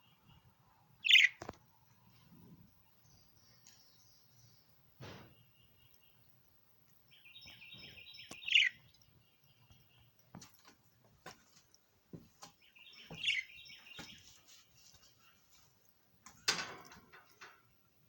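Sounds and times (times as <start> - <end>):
pet bird chirping: 0.0 - 1.5, 2.7 - 10.6, 12.5 - 16.0.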